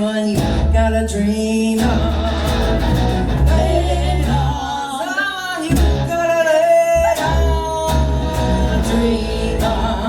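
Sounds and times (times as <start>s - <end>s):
live band playing: 1.8s - 4.6s, 5.7s - 6.3s, 7.1s - 10.0s.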